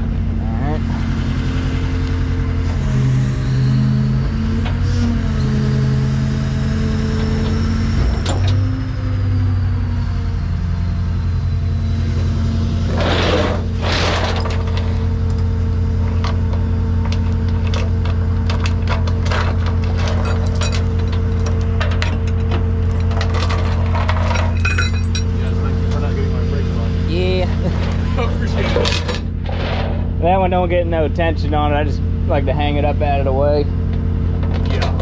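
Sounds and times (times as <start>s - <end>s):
truck engine running: 0.0s - 35.0s
metal chains clinking and rattling: 13.8s - 26.2s, 27.7s - 30.0s, 34.4s - 35.0s.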